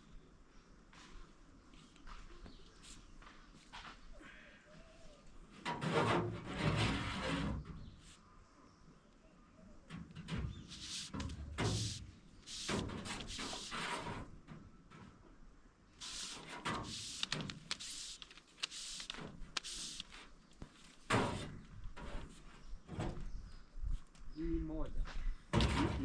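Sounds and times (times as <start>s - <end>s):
cable scraping and rubbing: 10.6s - 14.3s, 16.0s - 20.3s.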